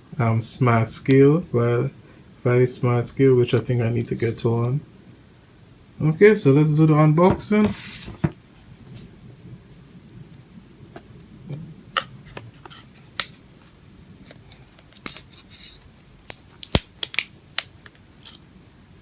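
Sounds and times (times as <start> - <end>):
packaging clicks and crackles: 14.3 - 18.4.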